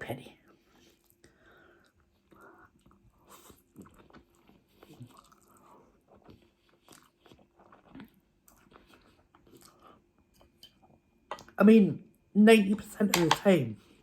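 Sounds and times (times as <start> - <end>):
chewing and crunching: 0.6 - 11.1.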